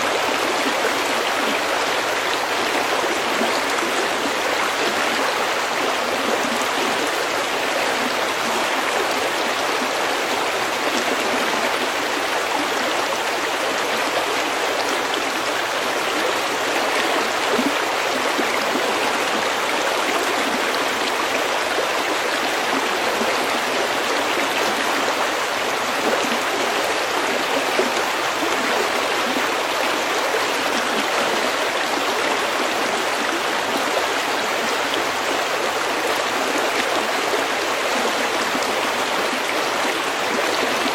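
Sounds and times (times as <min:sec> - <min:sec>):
stream running over stones: 0:00.0 - 0:40.9.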